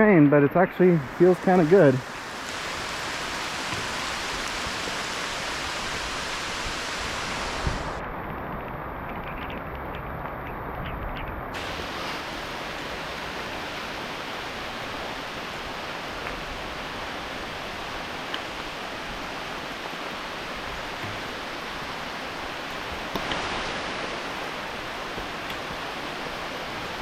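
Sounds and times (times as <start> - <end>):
heavy rain pouring: 1.0 - 10.8, 11.4 - 27.0.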